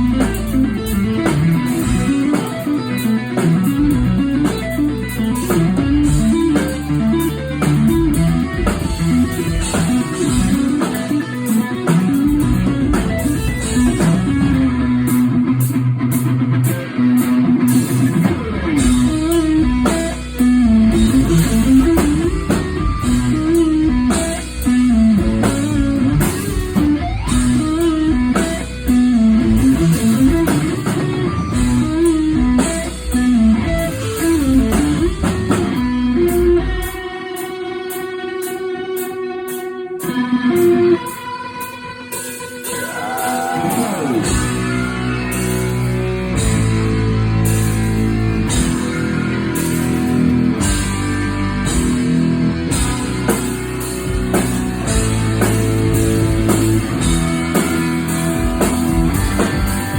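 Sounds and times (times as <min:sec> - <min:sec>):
sustained bass line: 0:00.0 - 0:11.0, 0:11.9 - 0:15.6, 0:17.5 - 0:37.0, 0:44.2 - 0:59.9
loud electric guitar: 0:00.0 - 0:59.9.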